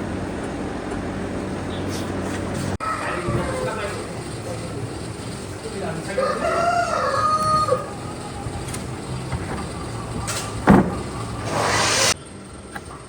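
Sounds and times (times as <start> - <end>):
rooster crowing: 2.8 - 4.2, 6.0 - 8.8
hissing noise: 10.2 - 12.2.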